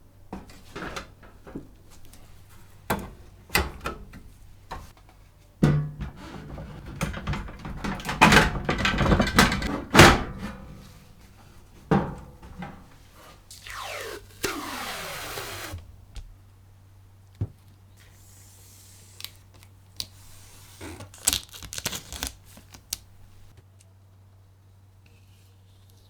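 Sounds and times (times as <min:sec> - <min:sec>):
sharp clicks and knocks: 0:02.9 - 0:10.7
tearing rasping noises: 0:20.0 - 0:23.5.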